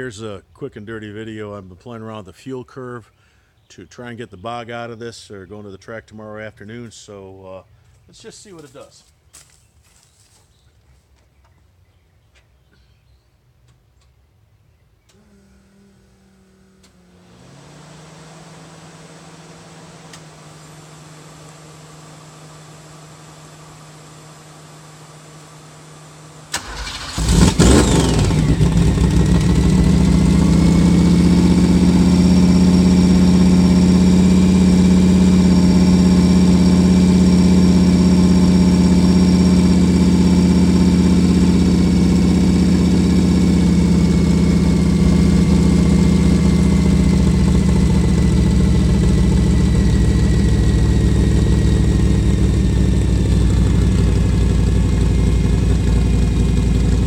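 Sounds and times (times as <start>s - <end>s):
click: 13.6s - 14.2s, 20.1s - 20.3s
engine cranking and idling: 26.4s - 57.0s.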